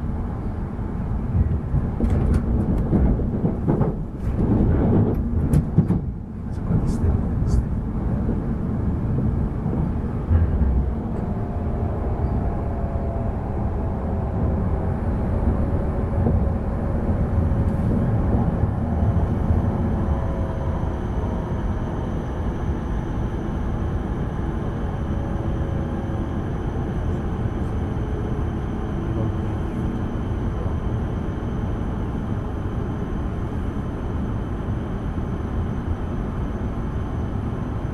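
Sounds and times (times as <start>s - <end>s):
train interior rumble: 0.0s - 37.9s.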